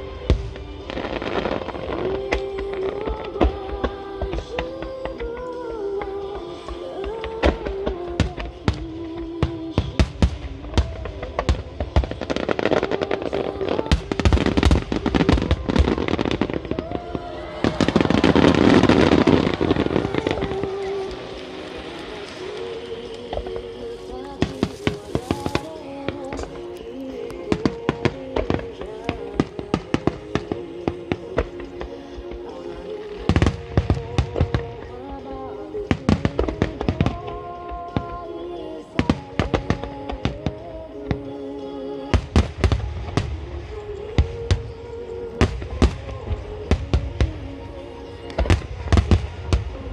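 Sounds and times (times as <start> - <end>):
fireworks bangs and crackling: 0.0 - 49.9
music playing: 0.0 - 49.9.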